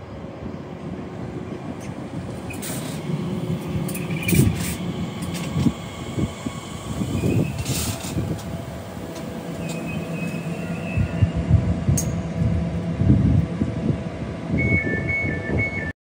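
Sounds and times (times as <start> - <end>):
train rumbling past: 0.0 - 15.9
faint high squeal: 9.6 - 11.5.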